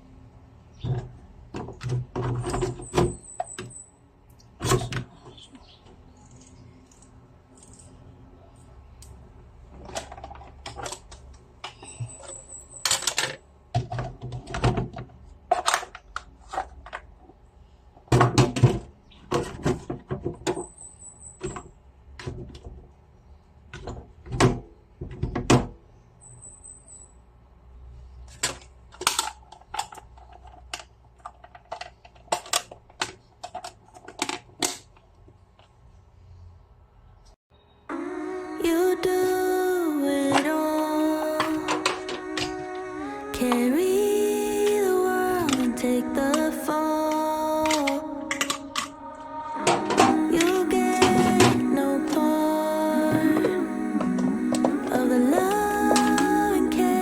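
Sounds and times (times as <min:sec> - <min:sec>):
objects clattering: 0:43.4 - 0:57.0.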